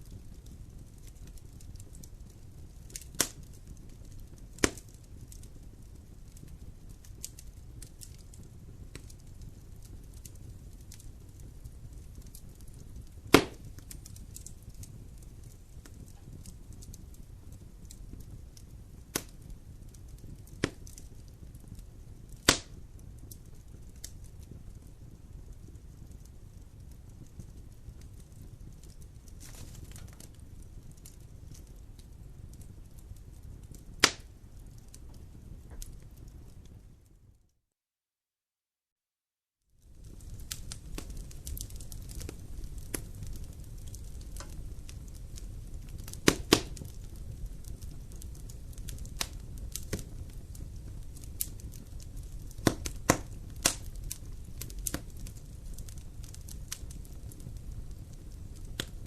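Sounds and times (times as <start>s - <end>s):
wood fire crackling: 0.0s - 37.5s, 39.7s - 59.0s
sharp loud pop of fire: 13.3s - 13.6s, 22.4s - 22.8s, 34.0s - 34.3s.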